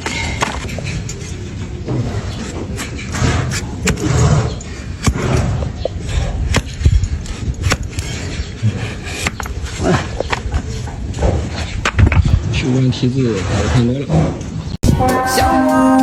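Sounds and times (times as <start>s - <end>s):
dull thumps: 1.8s - 12.5s
sharp knocks: 1.9s - 4.4s, 5.0s - 5.7s, 6.5s - 8.2s, 9.0s - 9.6s, 11.2s - 12.4s.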